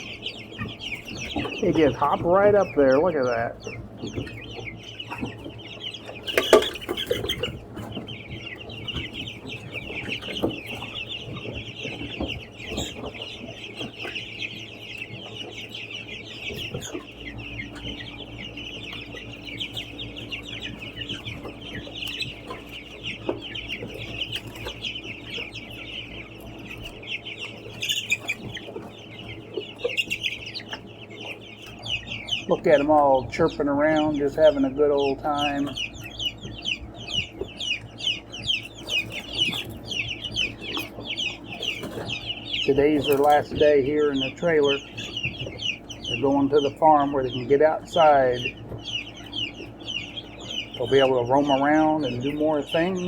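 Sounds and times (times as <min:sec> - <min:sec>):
young chickens chirping: 0:00.0 - 0:53.0.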